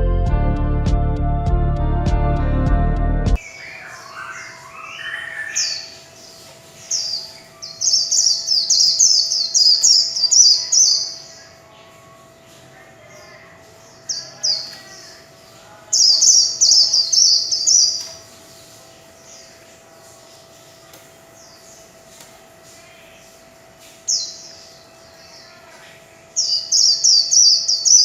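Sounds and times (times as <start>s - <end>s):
bird twittering song: 3.4s - 12.1s, 13.1s - 28.0s.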